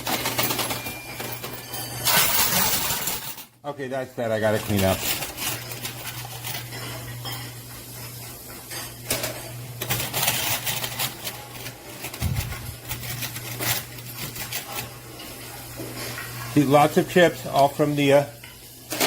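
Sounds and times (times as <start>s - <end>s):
coins and chips clinking: 0.0s - 3.5s, 4.4s - 7.6s, 8.7s - 15.4s.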